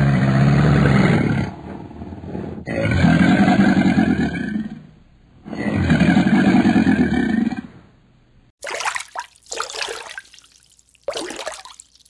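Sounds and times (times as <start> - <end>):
crocodile bellowing: 0.0 - 1.8, 2.6 - 7.9.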